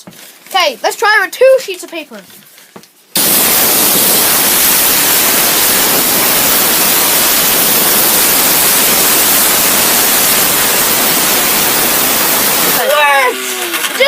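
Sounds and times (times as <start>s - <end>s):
compressed air hissing: 3.2s - 14.0s.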